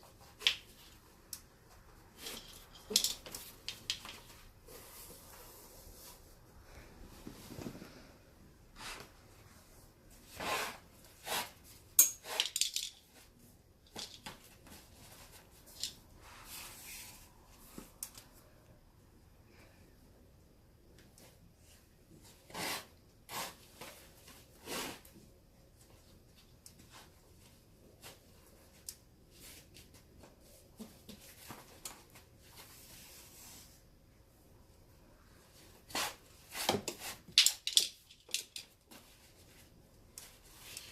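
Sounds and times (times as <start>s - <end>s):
rustles and light taps: 7.0s - 8.1s.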